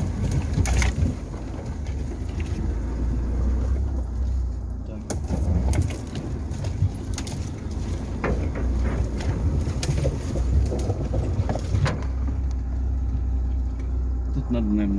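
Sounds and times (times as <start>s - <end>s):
car driving rumble: 0.0s - 14.9s
short knocks and rattles: 5.1s - 12.6s.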